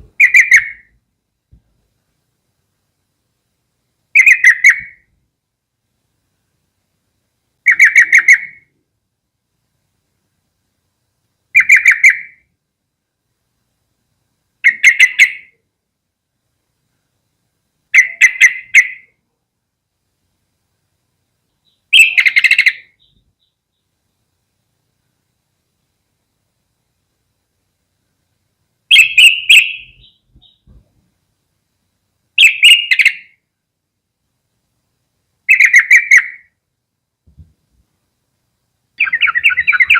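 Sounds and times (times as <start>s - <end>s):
bird chattering calls: 0.2s - 0.9s, 4.2s - 5.0s, 7.7s - 8.7s, 11.6s - 12.4s, 14.6s - 15.6s, 18.0s - 19.1s, 21.6s - 23.6s, 28.9s - 30.7s, 32.4s - 33.3s, 35.5s - 36.5s, 39.0s - 39.9s.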